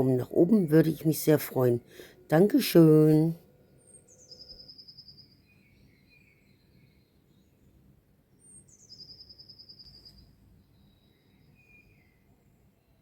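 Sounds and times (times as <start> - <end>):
soft bird chirps: 0.0 - 13.0.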